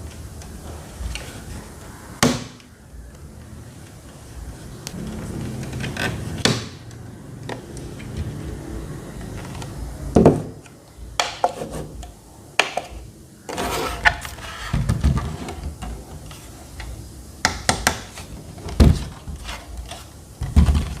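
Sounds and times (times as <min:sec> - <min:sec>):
table fan knocks and clicks: 0:09.2 - 0:13.1, 0:14.0 - 0:19.4, 0:20.4 - 0:21.0.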